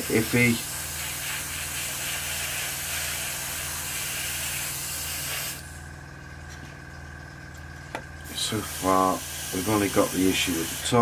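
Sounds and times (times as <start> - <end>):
spray paint hiss: 0.0 - 5.8, 8.2 - 11.0.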